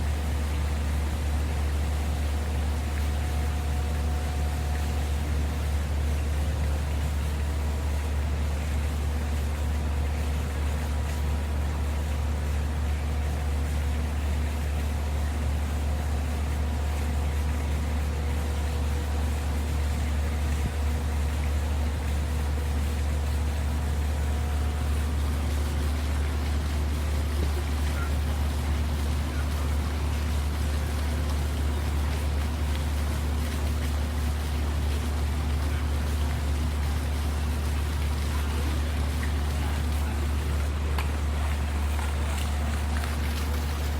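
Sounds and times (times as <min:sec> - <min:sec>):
constant low hum: 0:00.0 - 0:43.9
water fountain running: 0:00.0 - 0:43.9.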